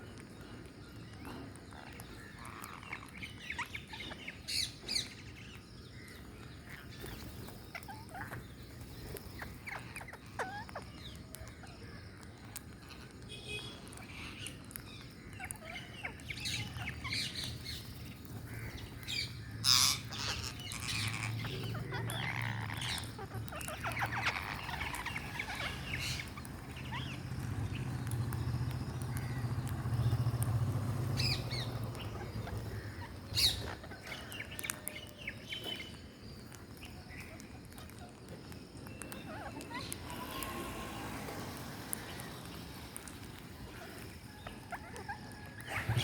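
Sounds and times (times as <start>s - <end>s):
parrots chattering and calling: 1.2s - 46.0s
loud parrot squawks: 19.6s - 27.2s.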